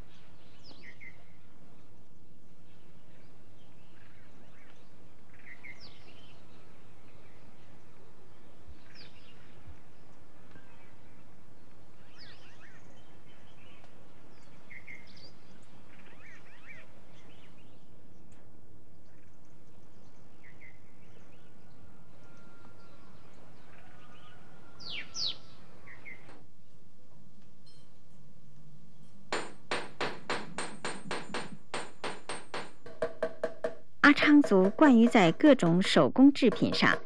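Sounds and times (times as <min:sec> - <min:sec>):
small birds chirping: 0:00.0 - 0:26.9
outdoor background hiss: 0:00.0 - 0:37.0.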